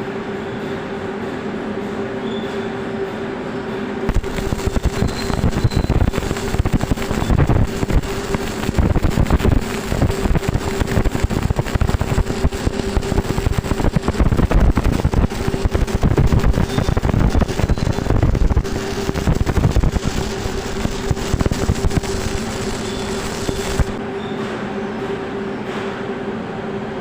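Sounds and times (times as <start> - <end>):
steady machine hum: 0.0 - 27.0
welding arc crackling: 4.1 - 24.0.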